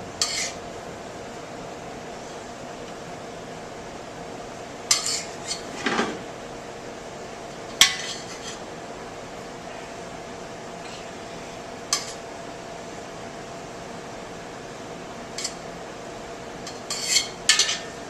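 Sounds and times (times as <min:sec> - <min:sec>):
kitchen fan hum: 0:00.0 - 0:18.0
metal utensils clinking on dishes: 0:15.4 - 0:15.6, 0:16.7 - 0:17.9.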